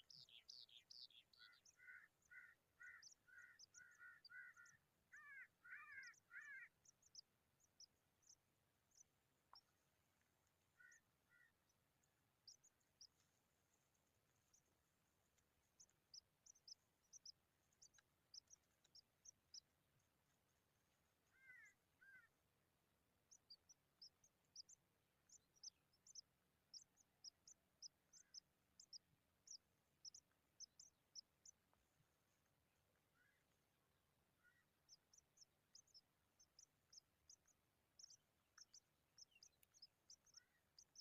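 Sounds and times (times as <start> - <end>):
faint high-pitched bird chirping: 0.0 - 9.8, 21.2 - 22.3, 23.2 - 31.7, 34.4 - 41.0.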